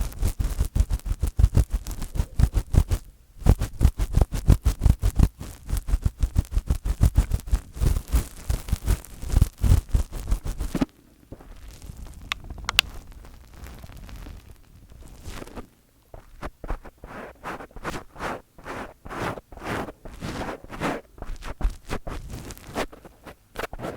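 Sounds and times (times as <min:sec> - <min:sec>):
fingers rubbing on microphone: 0:00.0 - 0:10.9, 0:11.5 - 0:23.9
soft scratching: 0:00.0 - 0:23.9.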